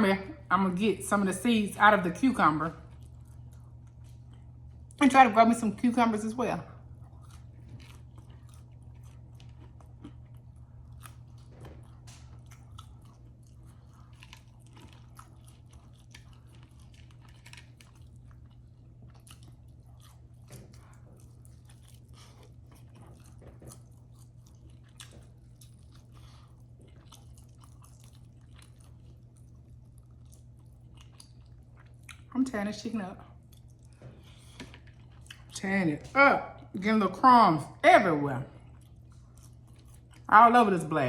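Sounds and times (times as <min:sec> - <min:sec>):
steady low hum: 0:00.0 - 0:41.0
person chewing crispy food: 0:02.8 - 0:05.0, 0:06.8 - 0:32.4, 0:33.3 - 0:35.6, 0:38.6 - 0:40.3.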